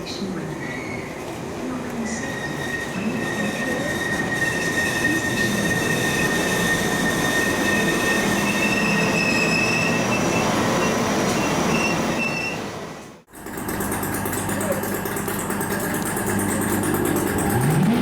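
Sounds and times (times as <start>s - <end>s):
train wheels rumbling: 0.0s - 18.0s
train wheel squeal: 0.4s - 1.4s, 2.0s - 13.2s.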